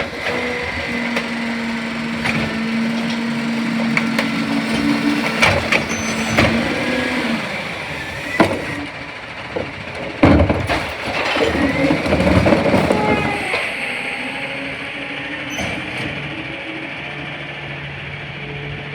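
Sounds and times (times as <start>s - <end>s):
knocks and clatter: 0.0s - 13.8s
garbage truck hum: 0.0s - 18.9s
rising squeal: 5.8s - 8.8s, 11.3s - 18.9s.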